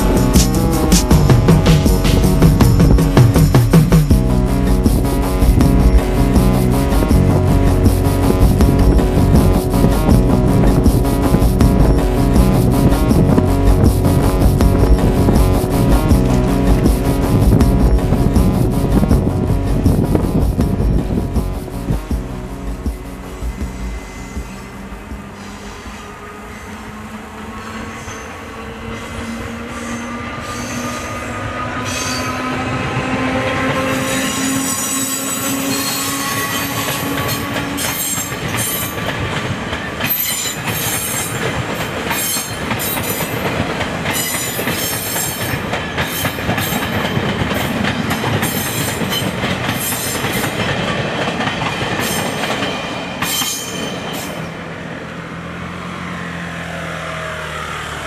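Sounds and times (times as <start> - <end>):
train hum: 0.0 - 58.0
train wheels clattering: 32.2 - 54.4.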